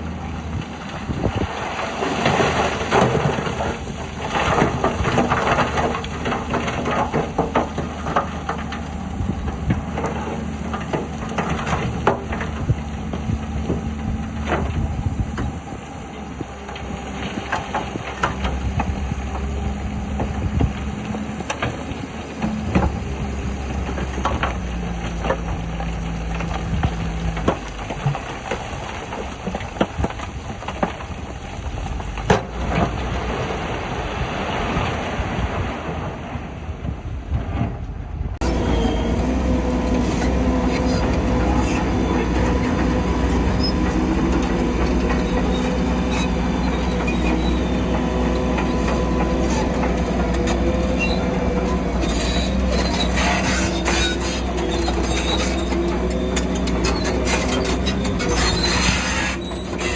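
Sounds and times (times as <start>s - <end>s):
bulldozer diesel engine running: 0.0s - 36.4s, 37.0s - 59.9s
steel tracks clanking: 38.4s - 59.9s.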